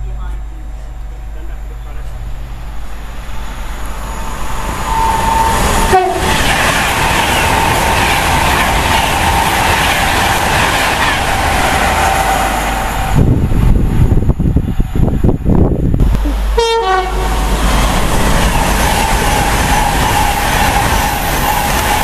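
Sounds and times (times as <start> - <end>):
train rushing past on rails: 0.0 - 22.0
train two-tone horn: 4.8 - 6.5, 16.2 - 17.5.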